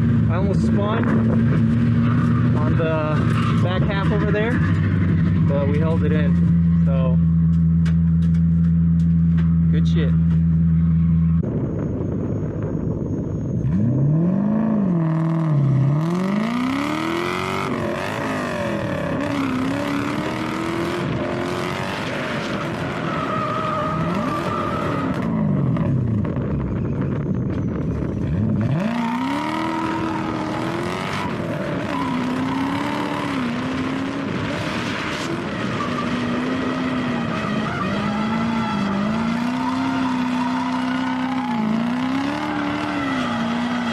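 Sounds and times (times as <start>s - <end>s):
car engine revving: 0.0s - 11.7s, 12.4s - 43.9s
tyres squealing: 28.7s - 33.6s, 35.6s - 43.9s.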